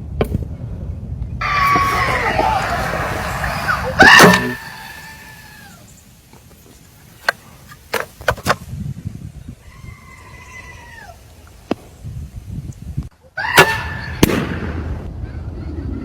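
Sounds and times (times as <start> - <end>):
drawn-out animal call: 1.4 - 5.9.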